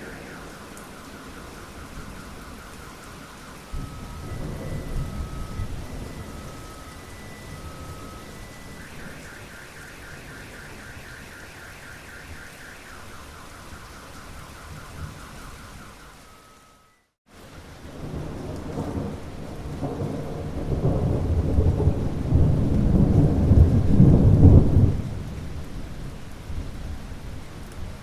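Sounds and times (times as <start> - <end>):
thunder rumbling: 0.0 - 16.6, 17.6 - 28.0
faint repeating tone: 0.0 - 17.1
rain falling: 0.0 - 28.0.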